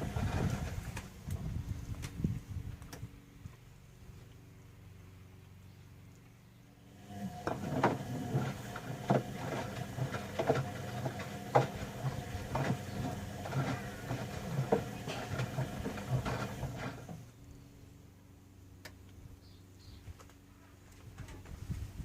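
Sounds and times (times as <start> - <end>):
washing machine motor hum: 0.0 - 1.7, 6.8 - 17.4.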